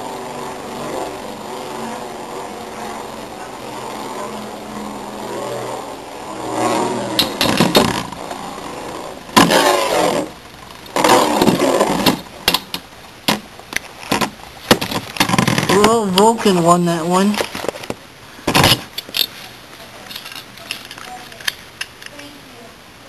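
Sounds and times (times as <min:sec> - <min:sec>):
spinning tops whirring: 0:00.0 - 0:16.2
spinning tops clattering: 0:06.5 - 0:08.8.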